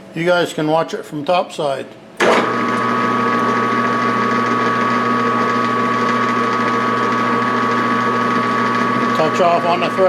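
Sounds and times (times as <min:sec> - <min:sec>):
metal lathe running: 0:02.2 - 0:10.0.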